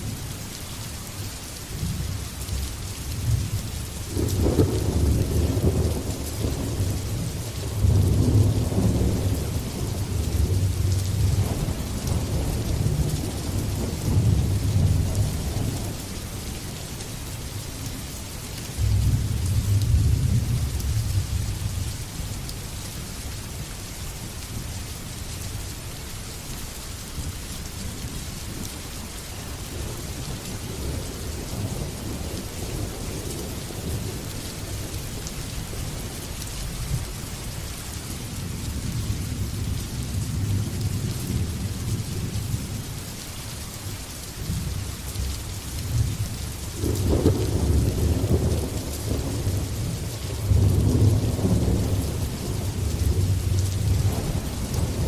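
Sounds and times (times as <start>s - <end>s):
heavy rain: 0.0s - 55.0s
rolling thunder: 4.1s - 16.0s, 45.9s - 55.0s.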